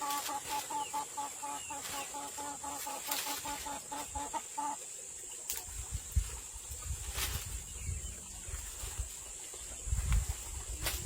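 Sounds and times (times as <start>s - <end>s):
chicken clucking: 0.0s - 4.8s.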